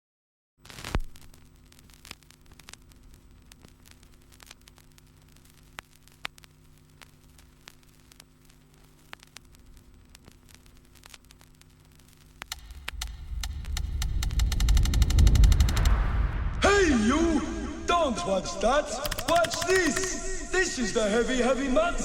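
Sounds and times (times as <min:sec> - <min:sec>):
crackling clicks and pops: 0:00.6 - 0:16.2, 0:19.0 - 0:20.5.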